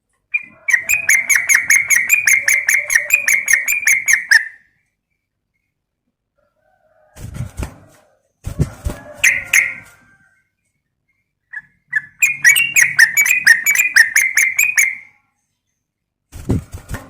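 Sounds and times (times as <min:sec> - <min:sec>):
bird chattering calls: 0:00.3 - 0:04.6, 0:11.5 - 0:15.1.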